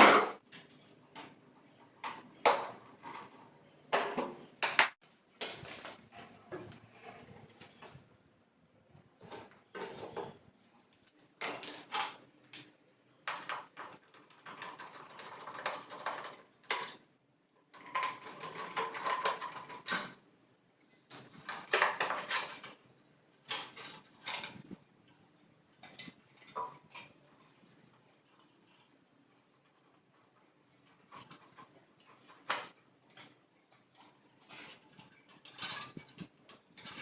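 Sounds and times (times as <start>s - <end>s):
hard objects knocking and clattering: 9.0s - 10.6s, 11.3s - 20.3s, 21.1s - 24.9s.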